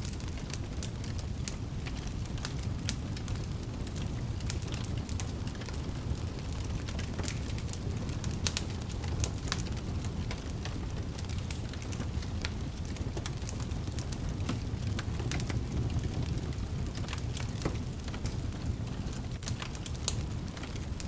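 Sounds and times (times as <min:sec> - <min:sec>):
fireplace fire crackling: 0:00.0 - 0:21.0
low rumble of flames: 0:00.0 - 0:21.0.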